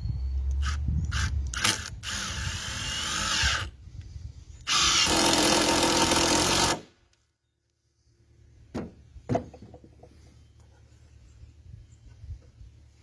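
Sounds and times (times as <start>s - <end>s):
power drill running: 0.6s - 3.7s, 4.7s - 6.8s.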